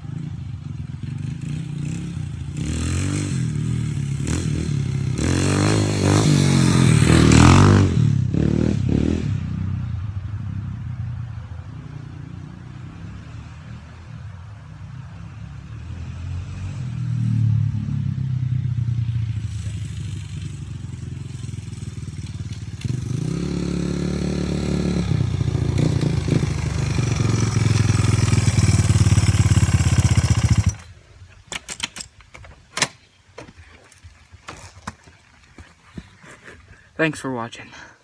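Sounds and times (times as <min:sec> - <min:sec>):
dirt bike engine revving: 0:00.0 - 0:09.8, 0:19.2 - 0:31.0.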